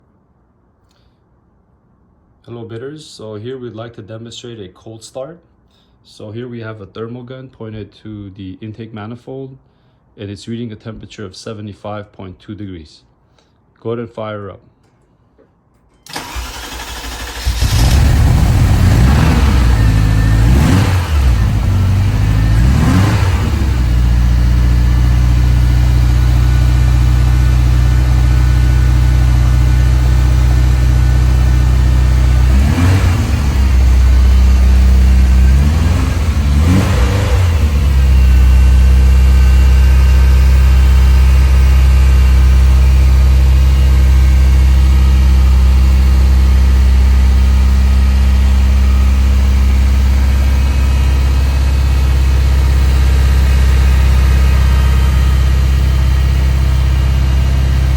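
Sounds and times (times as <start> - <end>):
car engine idling: 16.1 - 57.9
car engine starting and revving: 16.1 - 57.9.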